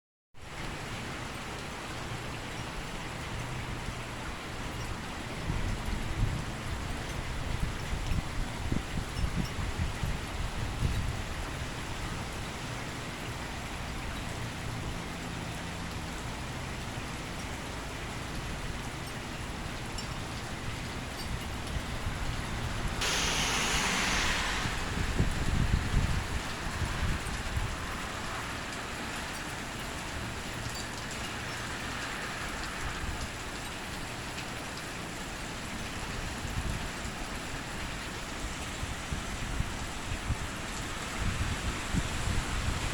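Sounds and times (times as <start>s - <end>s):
heavy rain falling: 0.5s - 42.9s
heavy rain hissing: 21.8s - 29.2s.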